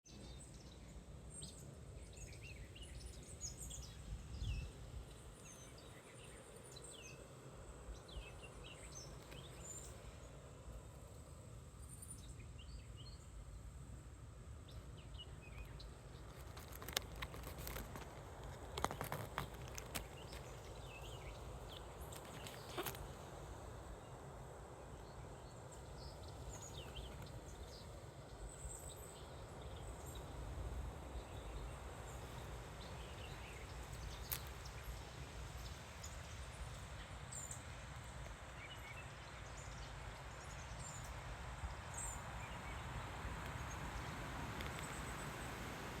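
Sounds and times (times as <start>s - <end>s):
wind rumbling on microphone: 0.2s - 46.0s
birds chirping: 14.7s - 24.2s, 24.9s - 30.5s.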